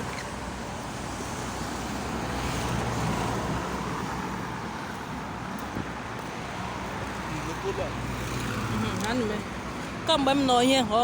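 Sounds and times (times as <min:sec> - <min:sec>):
road traffic noise: 0:00.0 - 0:11.0
vehicle passing: 0:01.1 - 0:10.9.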